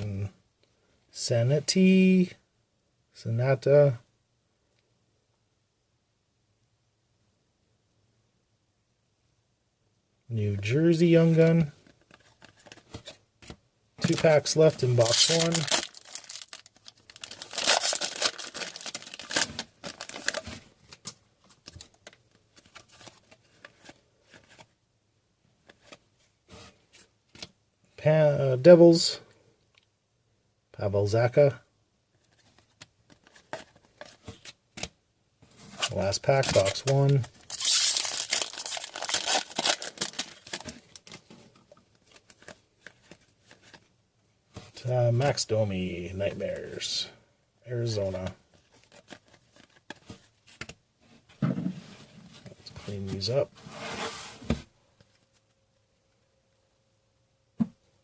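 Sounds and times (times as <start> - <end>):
cards being handled: 11.0 - 24.8, 32.2 - 43.9, 47.9 - 50.8
foil wrapper tearing and crinkling: 15.0 - 20.5, 36.5 - 41.2.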